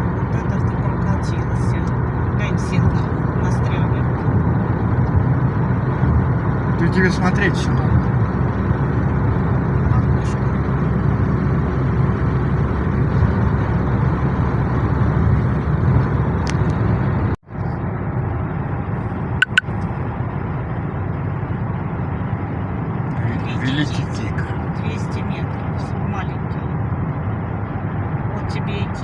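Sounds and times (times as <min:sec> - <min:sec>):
car road and engine noise: 0:00.0 - 0:29.0
sharp clicks: 0:19.4 - 0:19.6.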